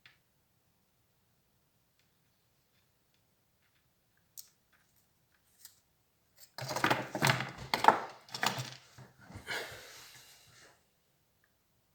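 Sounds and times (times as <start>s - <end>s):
clattering knocks and rattles: 6.6s - 8.8s.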